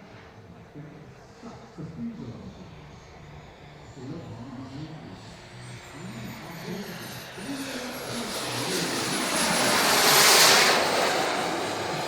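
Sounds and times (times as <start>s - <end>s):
high turbine whine: 0.0s - 12.0s
jet turbine roar: 0.1s - 12.0s.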